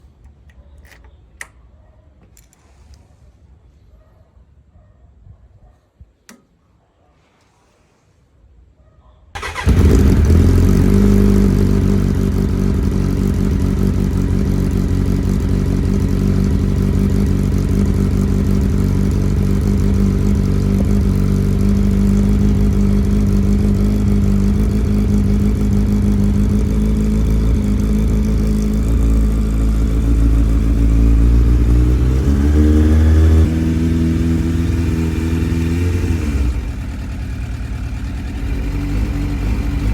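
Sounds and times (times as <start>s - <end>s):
motorcycle engine starting and idling: 9.4s - 39.9s.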